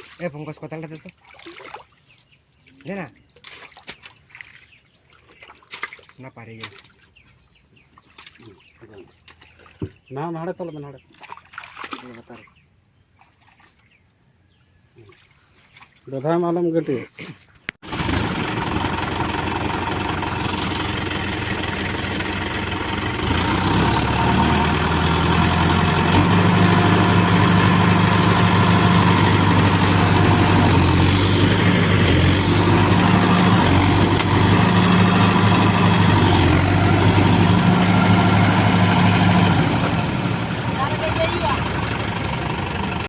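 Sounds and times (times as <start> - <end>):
tractor diesel engine running: 17.8 - 43.0.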